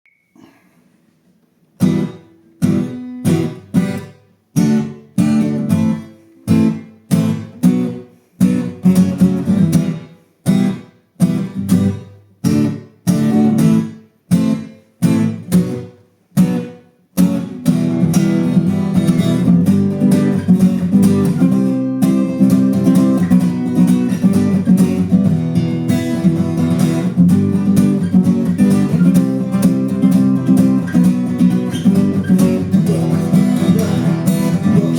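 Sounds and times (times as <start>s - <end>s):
acoustic guitar strumming: 1.8s - 34.9s.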